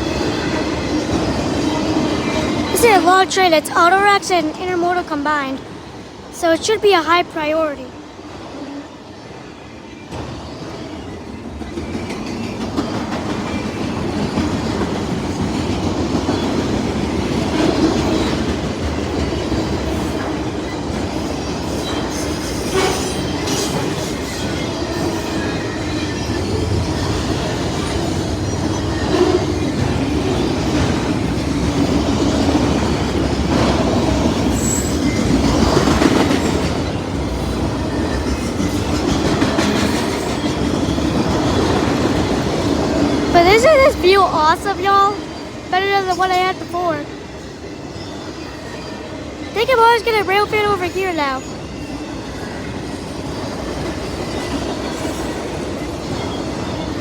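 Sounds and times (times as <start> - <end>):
train wheels rumbling on rail: 0.0 - 57.0
clickety-clack over rail joints: 10.1 - 44.5, 50.7 - 57.0.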